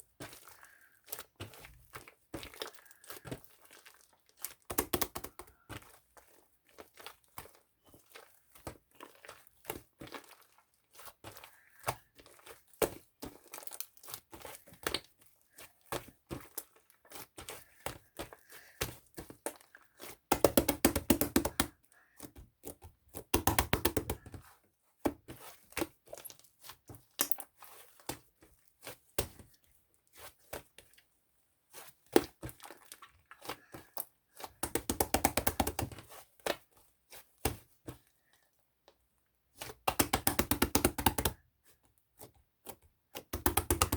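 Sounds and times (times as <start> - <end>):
small objects clicking and tapping: 20.3 - 21.7, 27.1 - 27.5, 34.6 - 36.0, 39.9 - 41.4, 43.2 - 43.9.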